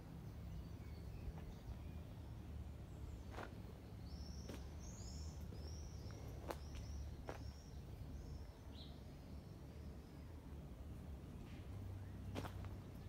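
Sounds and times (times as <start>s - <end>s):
small bird chirping: 0.3s - 10.4s
footsteps on dirt: 3.2s - 3.6s, 4.4s - 4.9s, 5.6s - 7.6s, 12.3s - 12.8s.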